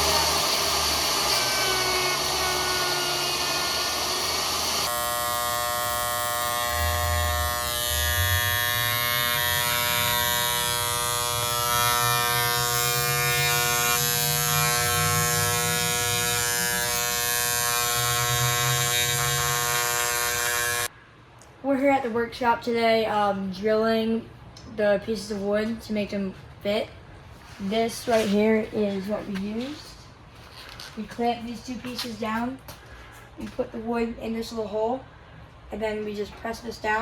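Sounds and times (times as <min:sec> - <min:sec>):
router motor routing wood: 0:00.0 - 0:20.9.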